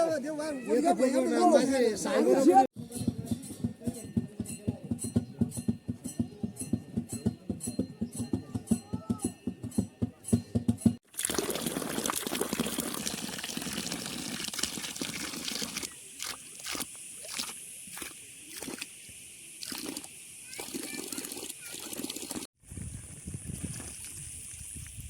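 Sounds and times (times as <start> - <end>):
music with a quick beat: 2.8 - 11.0
running water rushing: 11.1 - 22.5.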